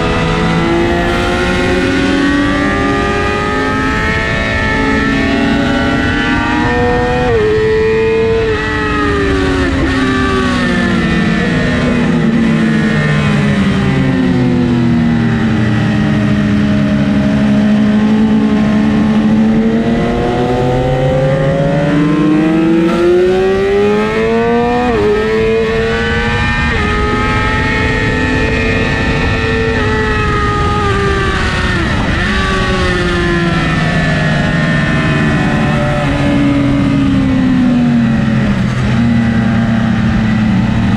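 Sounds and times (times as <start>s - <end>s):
motorcycle upshifts: 0.0s - 8.9s, 17.8s - 40.1s
motorcycle engine revving: 0.0s - 40.9s.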